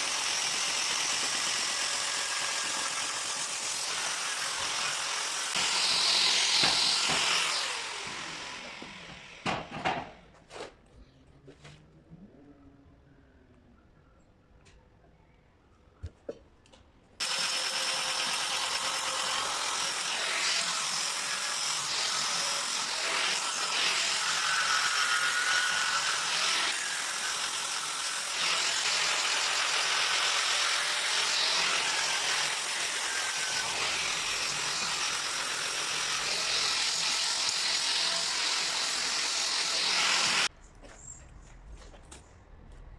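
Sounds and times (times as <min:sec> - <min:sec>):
power tool scouring metal rail: 0:00.0 - 0:09.3, 0:17.2 - 0:40.5.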